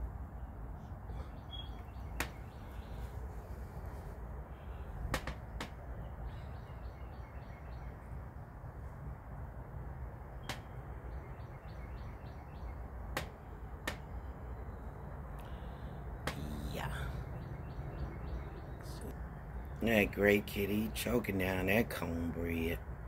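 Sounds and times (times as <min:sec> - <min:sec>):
steady low rumble: 0:00.0 - 0:06.9
bird chirping: 0:00.3 - 0:08.3, 0:10.4 - 0:13.5, 0:14.1 - 0:22.7.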